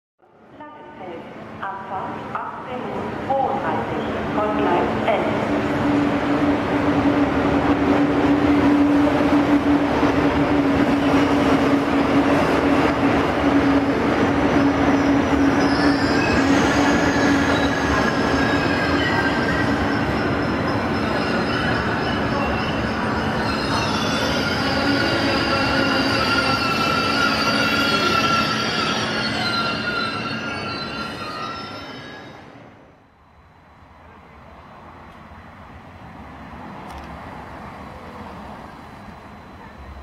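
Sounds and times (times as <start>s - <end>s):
train running into platform: 0.2s - 40.0s
high-pitched brake squeals: 14.6s - 32.5s
train power car hum: 32.8s - 40.0s.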